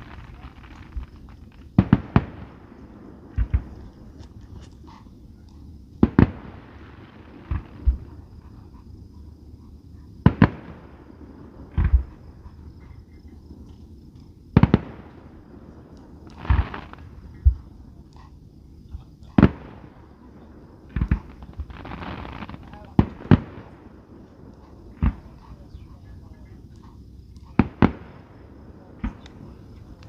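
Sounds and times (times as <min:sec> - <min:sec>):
fireworks bangs with echo: 0:00.0 - 0:05.0, 0:05.9 - 0:08.6, 0:10.2 - 0:12.4, 0:14.5 - 0:18.0, 0:19.2 - 0:30.0.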